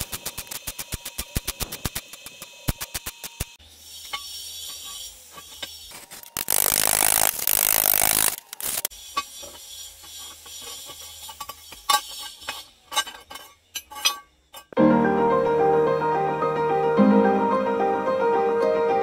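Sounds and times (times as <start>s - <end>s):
loud rasping metal scrape: 3.6s - 14.8s
steel clamp clinking and scraping: 4.0s - 14.8s.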